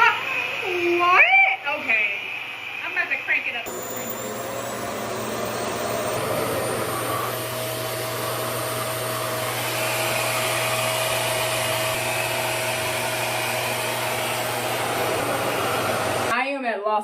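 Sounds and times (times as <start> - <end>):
hair dryer running: 3.6 - 16.4.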